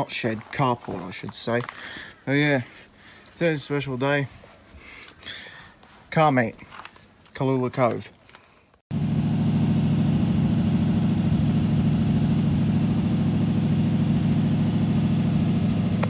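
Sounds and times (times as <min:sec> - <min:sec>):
car engine idling: 0:08.9 - 0:16.0.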